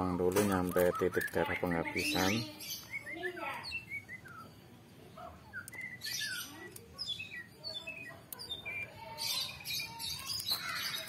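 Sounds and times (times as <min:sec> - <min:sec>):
birds chirping: 0:00.0 - 0:11.0
bird squawks: 0:05.2 - 0:11.0.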